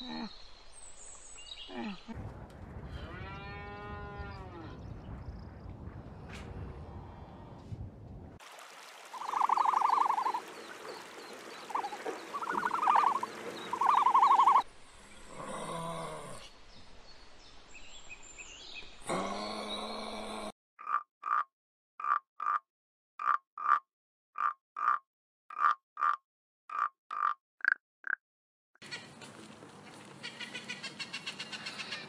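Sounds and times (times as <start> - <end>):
frogs croaking: 9.1 - 14.6
tree frog short croaks: 20.8 - 22.6.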